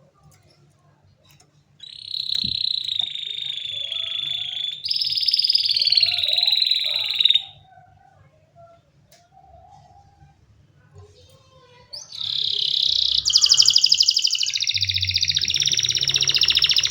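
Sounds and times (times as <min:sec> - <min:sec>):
canary trilling: 0:01.8 - 0:07.9, 0:11.4 - 0:16.9.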